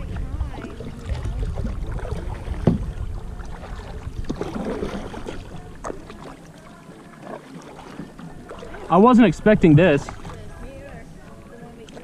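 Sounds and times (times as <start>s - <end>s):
wind rumble on microphone: 0.0s - 6.2s, 8.3s - 11.8s
water sloshing: 0.0s - 12.0s
paddle knocks: 1.6s - 6.3s.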